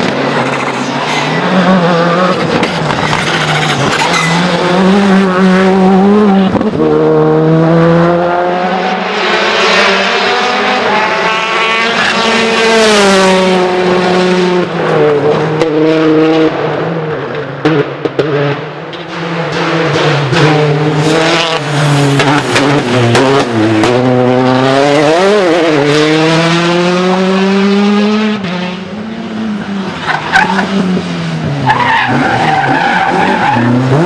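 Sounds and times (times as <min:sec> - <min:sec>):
rally car engine full throttle: 0:00.0 - 0:34.0.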